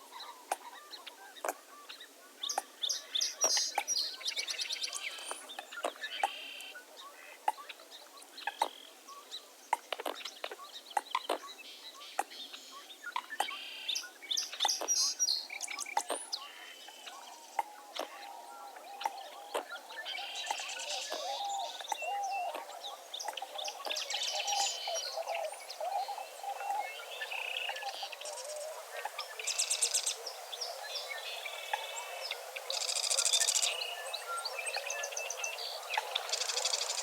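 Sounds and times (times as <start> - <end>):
low warbling bird calls: 8.4 - 37.0.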